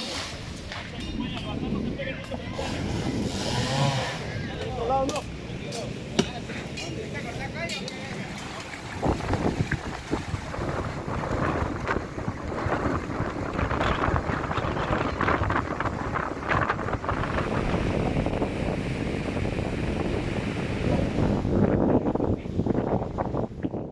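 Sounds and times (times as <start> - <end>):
strong wind buffeting microphone: 0.4 - 3.5, 7.8 - 23.9.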